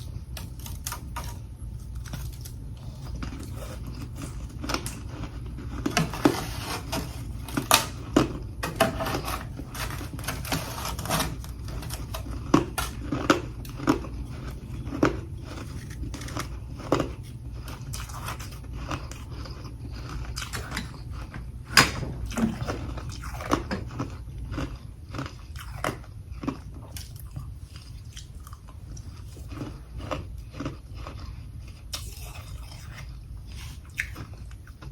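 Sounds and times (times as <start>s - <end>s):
steady low hum: 0.0s - 34.9s
person crunching ice: 2.0s - 17.1s.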